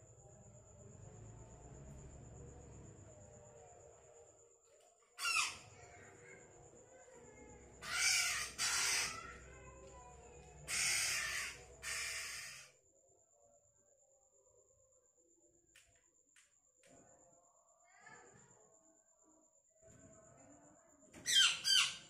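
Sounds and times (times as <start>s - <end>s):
harsh raspy squawking calls: 5.2s - 5.6s, 7.8s - 9.4s, 10.7s - 12.7s.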